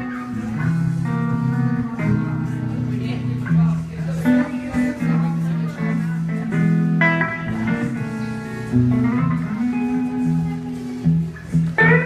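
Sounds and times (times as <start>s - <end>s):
guitar ringing notes: 0.0s - 12.0s.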